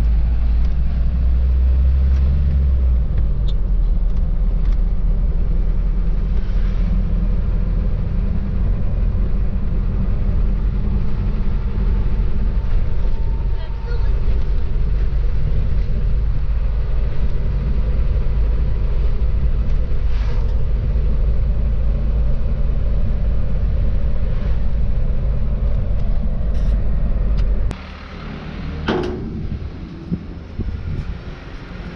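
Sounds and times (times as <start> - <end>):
truck engine and road noise: 0.0 - 31.9
knocks and rustles: 28.8 - 30.3.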